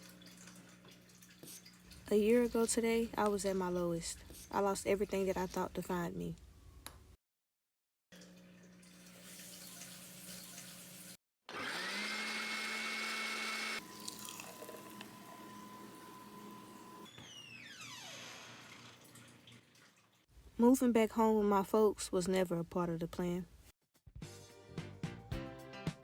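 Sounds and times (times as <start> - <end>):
small electric motor whining: 11.5 - 18.9.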